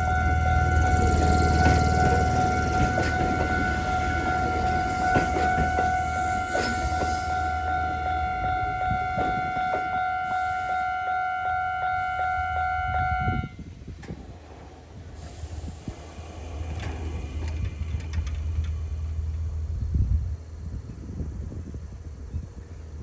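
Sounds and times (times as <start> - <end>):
level crossing warning bell: 0.0 - 13.2
electric train rumble: 0.0 - 23.0.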